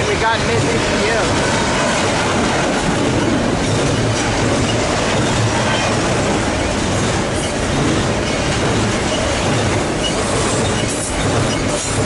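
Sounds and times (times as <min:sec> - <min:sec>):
freight train rolling past: 0:00.0 - 0:12.0.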